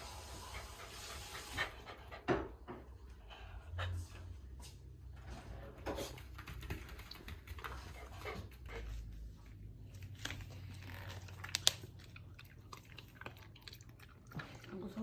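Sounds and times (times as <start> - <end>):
dog breathing and mouth noises: 9.9 - 15.0.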